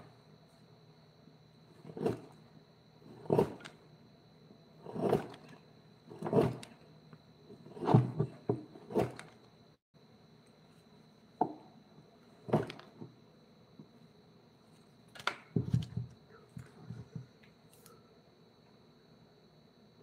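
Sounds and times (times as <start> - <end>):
wood knocks and scrapes: 1.8 - 2.4, 3.1 - 3.8, 4.8 - 6.8, 7.5 - 9.4, 12.4 - 13.2.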